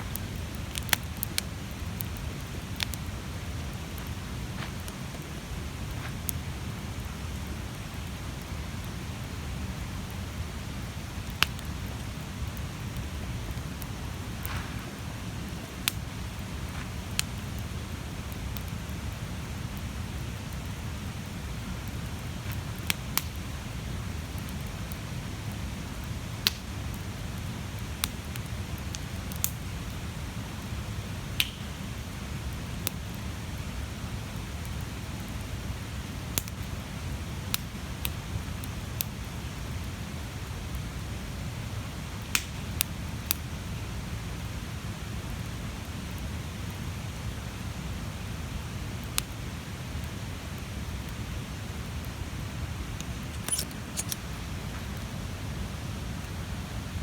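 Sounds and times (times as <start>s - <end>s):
wood crackling and popping: 0.0s - 25.1s, 26.4s - 27.0s, 27.8s - 29.7s, 31.4s - 31.7s, 42.2s - 43.5s, 52.0s - 55.2s
bonfire flames rumbling: 0.0s - 57.0s.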